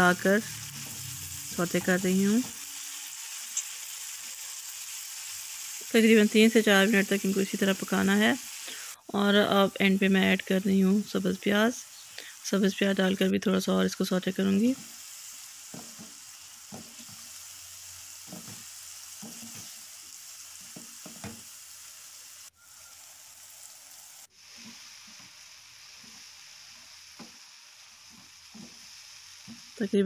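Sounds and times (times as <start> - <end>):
food sizzling in a frying pan: 0.0 - 30.0
spatula scraping pan: 18.1 - 19.8.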